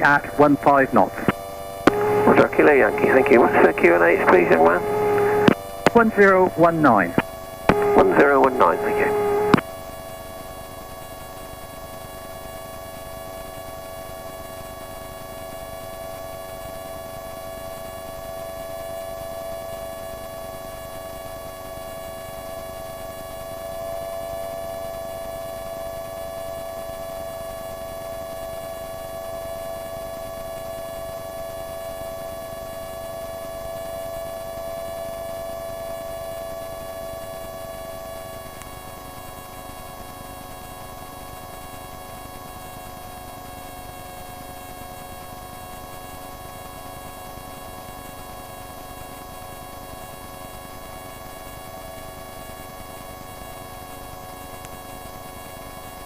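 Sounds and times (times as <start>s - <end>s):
aircraft engine droning whine: 0.0s - 9.6s.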